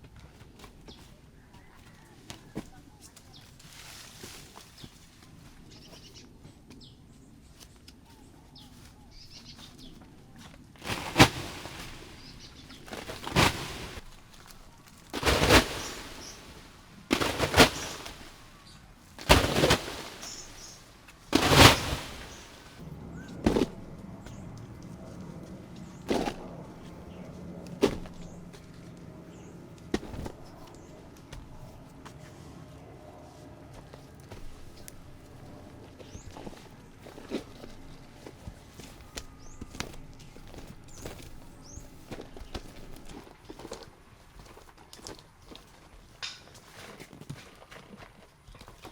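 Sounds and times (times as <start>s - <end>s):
tool striking wood or earth: 27.8s - 28.4s, 29.9s - 30.5s.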